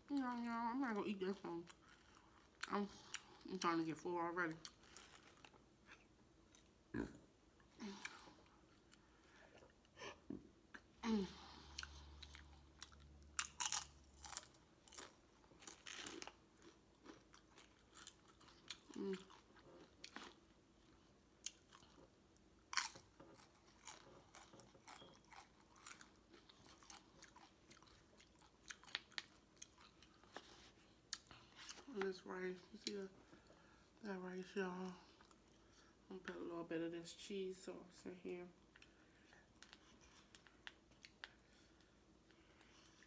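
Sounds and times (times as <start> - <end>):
person chewing food: 4.6 - 31.9, 38.6 - 43.0.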